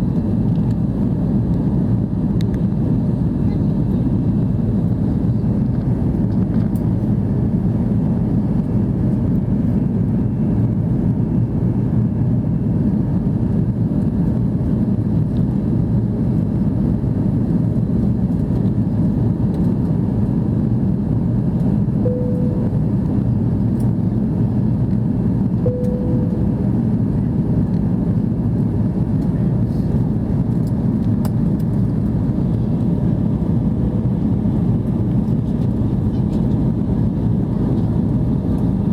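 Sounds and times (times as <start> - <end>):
aircraft cabin rumble: 0.0 - 38.9
short mid-pitched tones: 22.0 - 23.0, 25.6 - 26.8.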